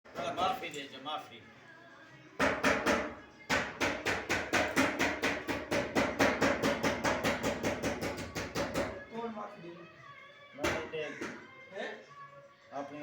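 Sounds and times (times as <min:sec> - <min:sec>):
hammer striking: 0:02.4 - 0:09.0.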